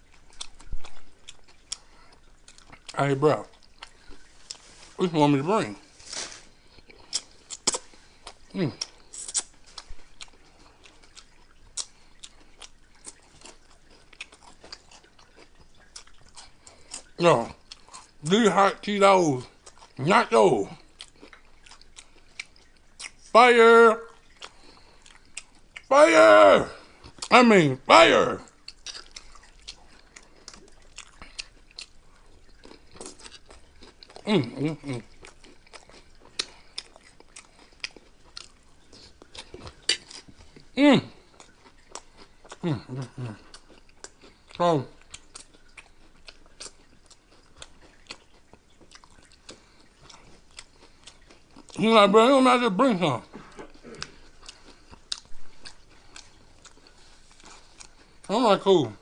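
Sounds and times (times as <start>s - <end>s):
chewing crunchy snacks: 0.0s - 59.0s
voiced murmur: 25.9s - 28.4s.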